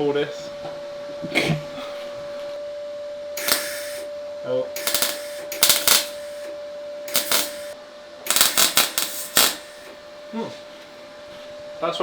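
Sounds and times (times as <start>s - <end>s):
steady hum: 0.1s - 11.8s
welder crackling: 3.4s - 4.1s, 4.8s - 6.5s, 7.1s - 10.0s.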